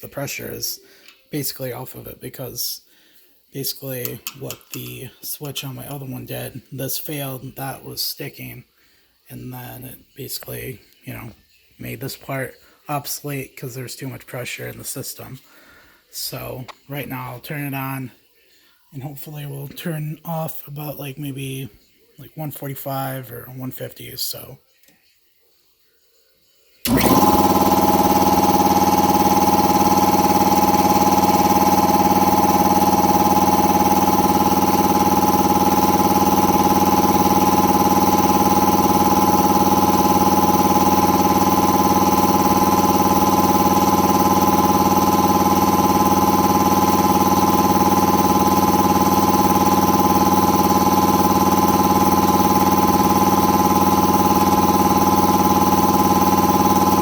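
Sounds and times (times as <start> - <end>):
air compressor running: 26.8 - 57.0.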